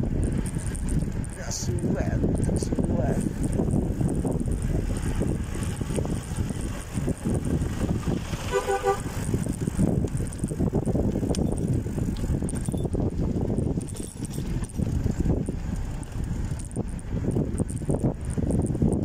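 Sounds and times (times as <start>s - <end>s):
bicycle rolling rumble: 0.0s - 19.0s
wind buffeting microphone: 0.0s - 19.0s
two-tone horn toot: 8.4s - 9.2s.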